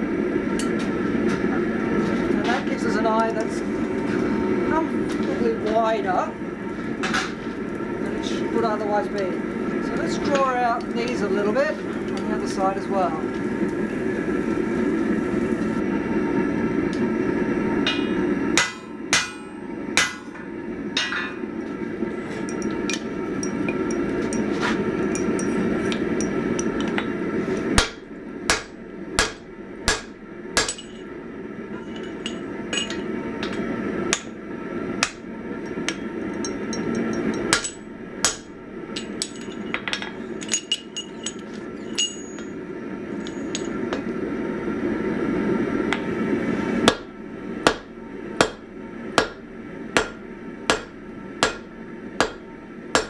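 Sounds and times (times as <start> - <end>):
hammer striking steel on anvil: 0.6 - 0.8, 17.8 - 21.4, 22.4 - 27.1, 27.8 - 31.2, 31.9 - 34.4, 35.0 - 42.6, 46.9 - 53.0.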